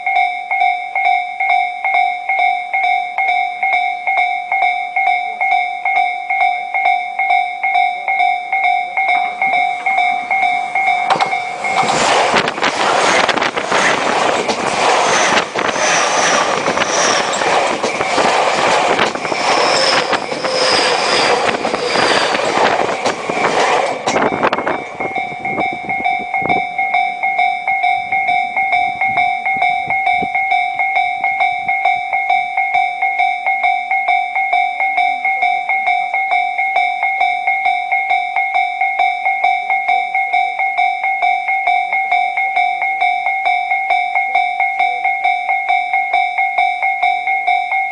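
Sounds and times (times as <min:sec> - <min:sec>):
crossing warning bell: 0:00.0 - 0:47.9
train rushing overhead: 0:08.5 - 0:32.9.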